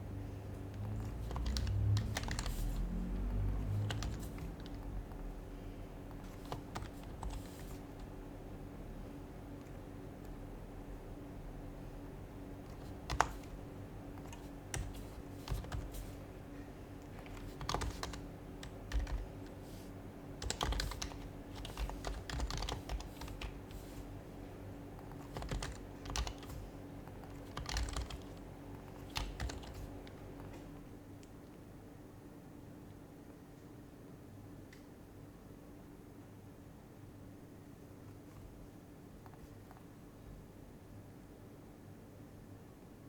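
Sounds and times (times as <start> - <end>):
soft muted keystrokes: 12.7 - 16.2, 17.0 - 19.6, 20.4 - 24.0, 25.0 - 31.6.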